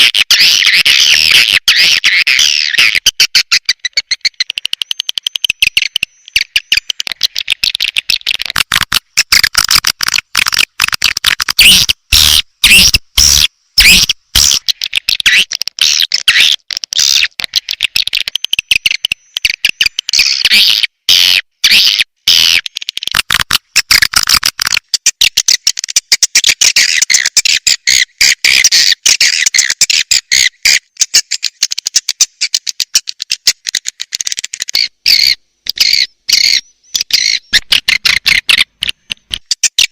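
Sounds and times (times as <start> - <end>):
swiftlets twittering and chirping: 0.0 - 9.9, 34.7 - 38.7.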